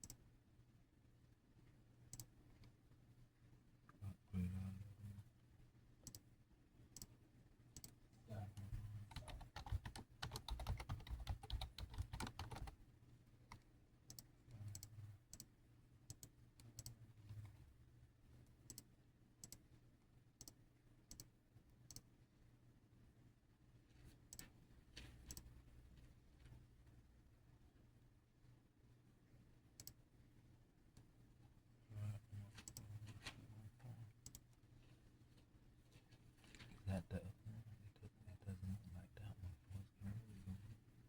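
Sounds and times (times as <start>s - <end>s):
rapid taps: 8.8s - 12.7s.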